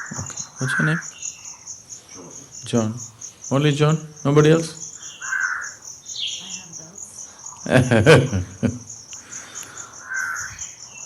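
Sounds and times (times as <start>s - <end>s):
short bird calls: 0.0s - 2.6s, 4.8s - 6.8s, 9.2s - 11.0s
crickets chirping: 0.0s - 11.0s.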